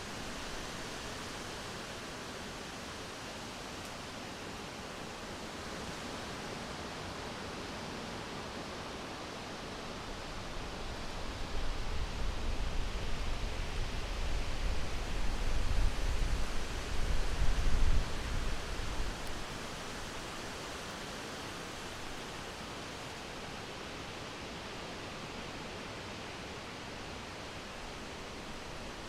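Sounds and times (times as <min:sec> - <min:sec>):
hissing wind: 0:09.2 - 0:29.0.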